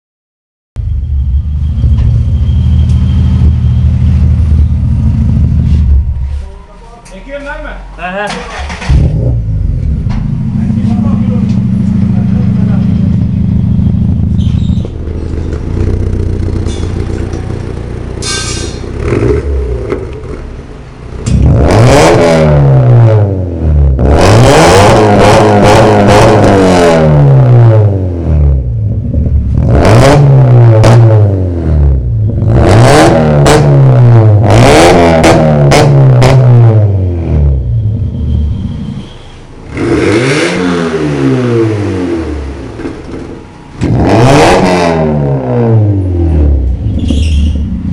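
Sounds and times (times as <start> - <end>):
car engine idling: 0.8 - 6.5, 7.2 - 21.6, 46.6 - 47.9
car engine revving: 1.6 - 6.4, 8.0 - 47.9.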